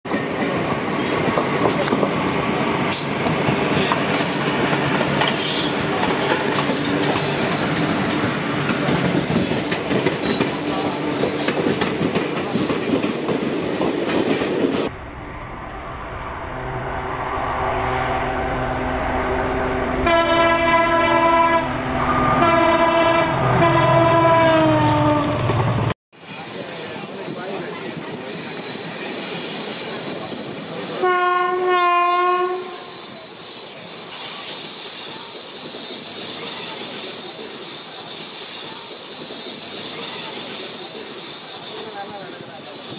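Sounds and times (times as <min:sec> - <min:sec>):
train wheels rushing on rails: 0:00.1 - 0:31.7, 0:32.4 - 0:42.9
diesel locomotive horn: 0:16.6 - 0:25.6, 0:31.0 - 0:32.9.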